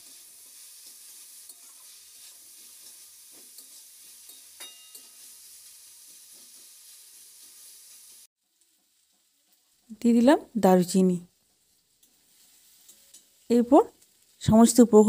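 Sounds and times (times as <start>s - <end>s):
food frying in oil: 0.0s - 15.0s
spatula scraping and tapping: 0.8s - 5.3s.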